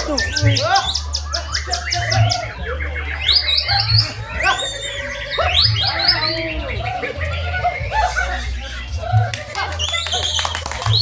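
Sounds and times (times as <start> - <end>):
birds singing whistled chirps: 0.0 - 11.0.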